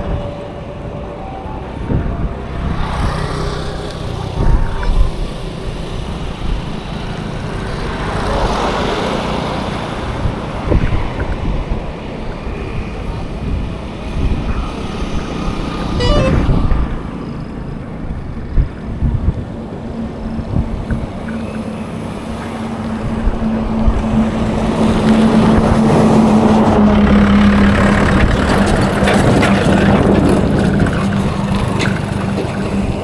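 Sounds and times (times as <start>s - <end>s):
passing vehicles rumbling: 0.0s - 33.0s
wind: 0.0s - 33.0s
vehicle horn tooting: 16.0s - 17.0s.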